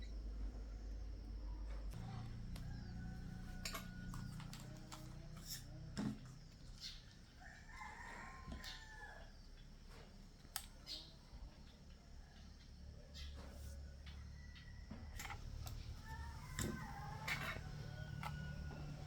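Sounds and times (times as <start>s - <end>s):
rooster crowing: 2.1s - 4.6s, 7.4s - 9.4s, 14.0s - 19.0s.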